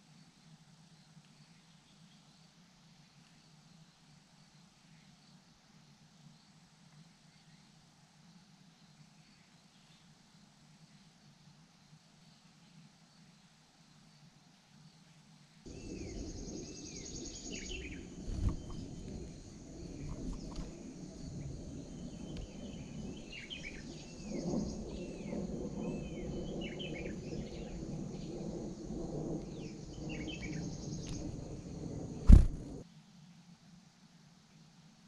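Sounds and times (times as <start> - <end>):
low rumble: 15.7 - 26.3, 27.2 - 32.8
small birds chirping: 15.7 - 32.8
thump: 32.3 - 32.6.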